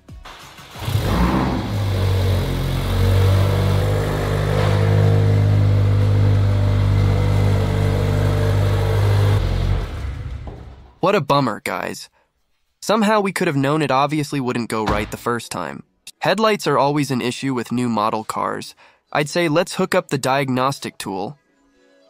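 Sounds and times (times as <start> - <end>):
car engine running: 0.7 - 10.9.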